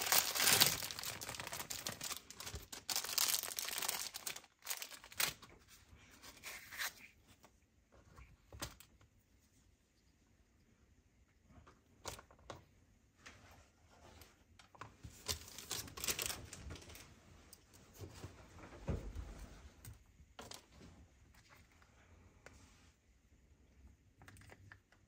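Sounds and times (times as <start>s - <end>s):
packaging rustling: 0.0s - 5.5s, 15.2s - 17.0s.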